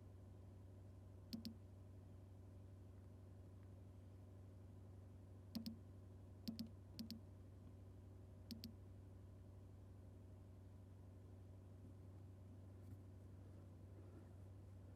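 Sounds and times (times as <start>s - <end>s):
faint low hum: 0.0s - 14.9s
quiet double clicks: 1.3s - 1.6s, 5.6s - 5.8s, 6.5s - 7.2s, 8.5s - 8.8s.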